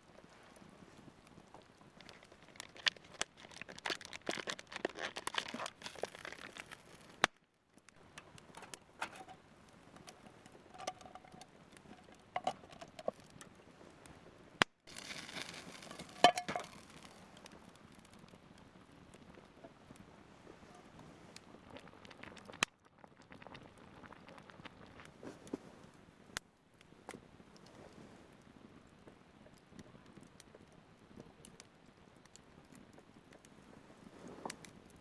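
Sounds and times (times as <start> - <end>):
rustling and crinkling: 0.0 - 14.1, 14.9 - 22.6, 23.3 - 26.0, 32.9 - 35.0.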